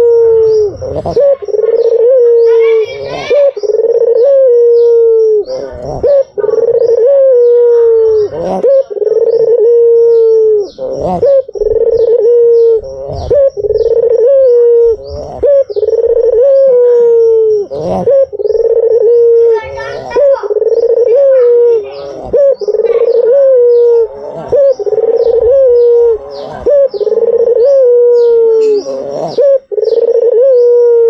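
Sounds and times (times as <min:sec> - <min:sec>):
dove cooing: 0:00.0 - 0:31.0.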